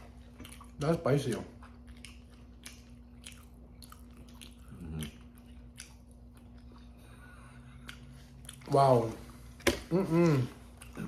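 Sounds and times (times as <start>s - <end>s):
person chewing wetly: 0.0s - 11.0s
person humming: 9.9s - 10.6s.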